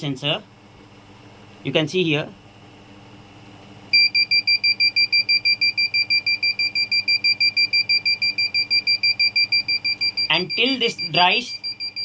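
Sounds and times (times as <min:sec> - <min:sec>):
piezo buzzer beeping: 0:03.9 - 0:12.0.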